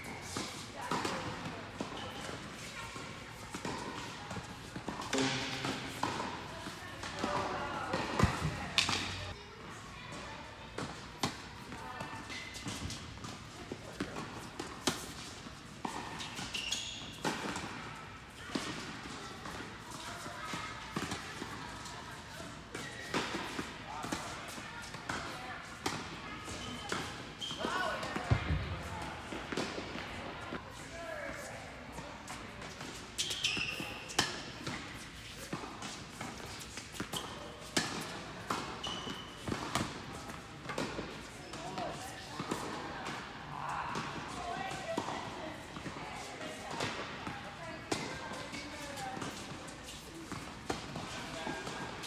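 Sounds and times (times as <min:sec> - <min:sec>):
tennis ball bouncing on court: 0:00.3 - 0:09.3, 0:29.3 - 0:30.4, 0:32.6 - 0:41.1, 0:42.0 - 0:43.2, 0:47.9 - 0:52.0
tennis balls struck and bouncing: 0:00.3 - 0:09.4
tennis ball hit by racket: 0:07.9 - 0:09.3
short high squeaks: 0:16.4 - 0:17.2, 0:33.2 - 0:34.2, 0:38.8 - 0:39.4.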